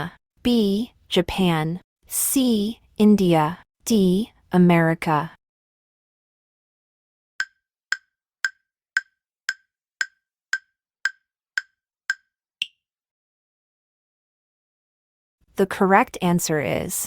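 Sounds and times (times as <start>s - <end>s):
countdown timer ticking: 7.4s - 12.8s.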